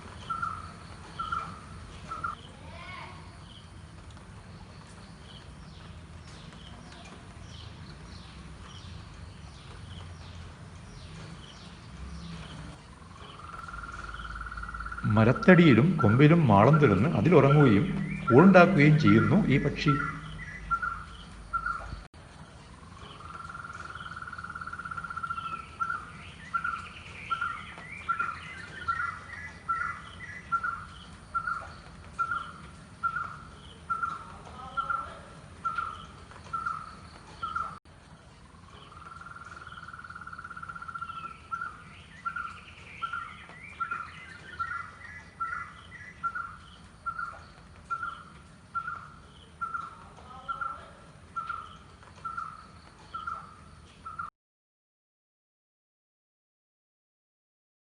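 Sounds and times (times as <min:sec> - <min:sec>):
loud repeated bird notes: 0:00.0 - 0:03.7, 0:11.0 - 0:22.1, 0:22.9 - 0:37.8, 0:38.6 - 0:54.3
small birds chirping: 0:00.0 - 0:54.3
bird rolling trill: 0:13.0 - 0:22.0.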